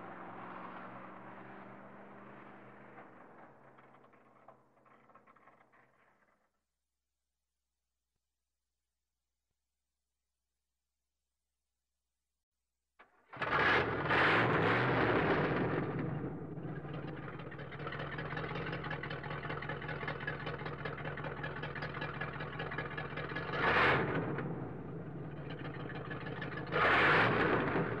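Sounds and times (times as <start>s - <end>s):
car engine idling and revving: 0.0s - 6.4s, 13.3s - 28.0s.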